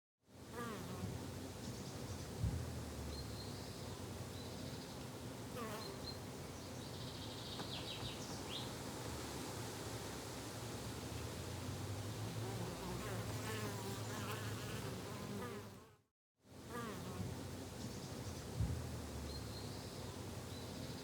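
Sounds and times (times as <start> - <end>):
insects buzzing: 0.6 - 8.7, 12.1 - 15.9
soft low thump: 2.4 - 3.2, 18.6 - 19.3.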